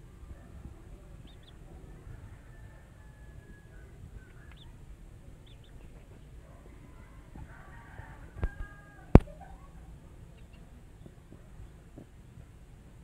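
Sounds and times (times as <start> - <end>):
low background rumble: 0.0 - 13.0
faint high bird chirps: 1.2 - 1.6, 3.7 - 4.8, 5.4 - 6.0.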